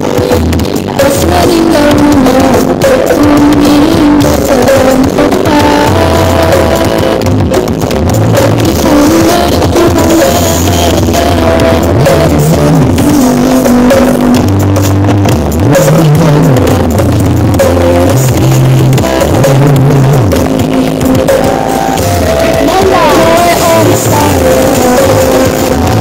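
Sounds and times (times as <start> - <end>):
loud sound system music: 0.0 - 26.0.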